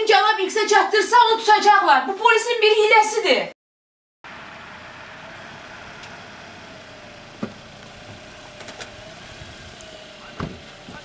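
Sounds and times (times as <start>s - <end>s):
car engine idling: 4.2s - 11.0s.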